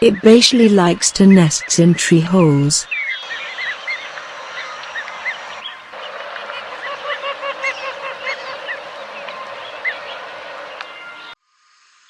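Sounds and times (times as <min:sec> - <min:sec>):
ducks calling: 0:02.9 - 0:11.4.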